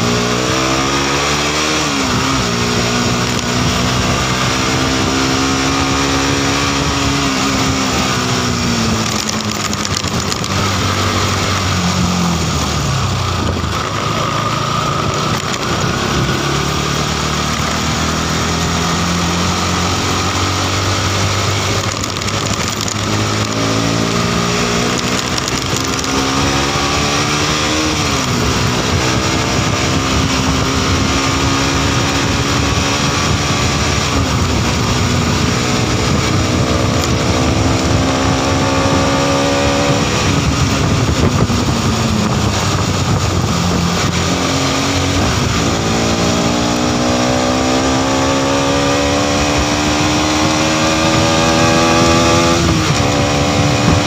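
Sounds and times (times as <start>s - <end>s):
motorcycle engine accelerating: 0.0s - 54.0s
wind and road noise: 0.0s - 54.0s.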